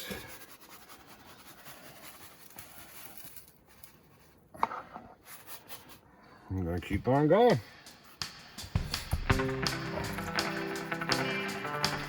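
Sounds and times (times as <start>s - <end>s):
gritty dirt scratching in pan: 0.0s - 4.5s.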